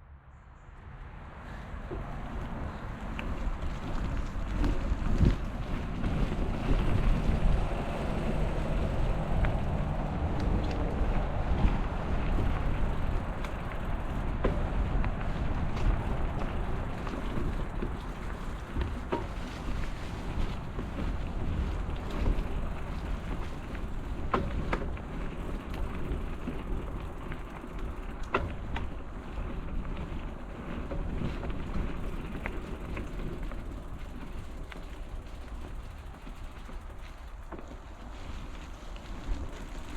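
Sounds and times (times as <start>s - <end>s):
bicycle tyres rumbling: 0.8s - 39.9s
wind on microphone: 1.5s - 27.6s
bike clicks: 1.5s - 39.9s.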